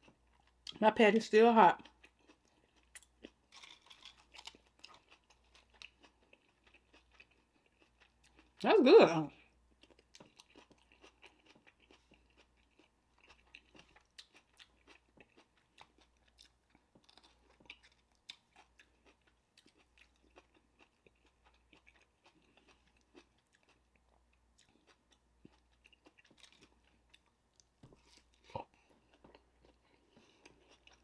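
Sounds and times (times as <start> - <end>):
faint chewing: 1.8 - 8.6, 9.4 - 31.0
soft onion crunches: 2.3 - 8.5.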